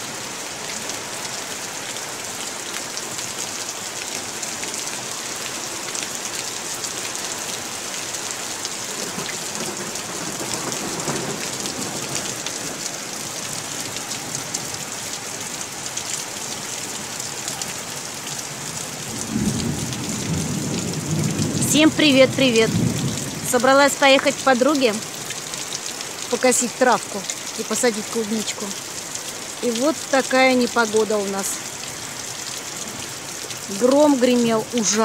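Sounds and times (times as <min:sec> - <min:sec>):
heavy rain hissing: 0:00.0 - 0:35.0
rain drops ticking: 0:00.0 - 0:35.0
low rumble of thunder: 0:08.9 - 0:12.8, 0:19.1 - 0:23.6.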